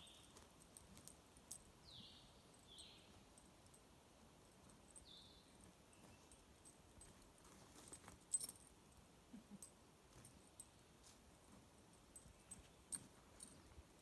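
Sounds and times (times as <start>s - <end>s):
metallic jingling and clicking: 0.0s - 1.8s, 2.5s - 9.0s, 11.9s - 14.0s.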